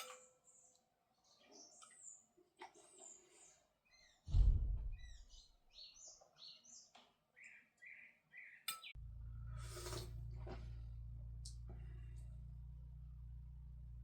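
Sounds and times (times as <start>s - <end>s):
small birds chirping: 0.0s - 9.0s
steady low hum: 4.3s - 5.4s, 9.0s - 14.0s
loud low thud: 4.3s - 5.5s.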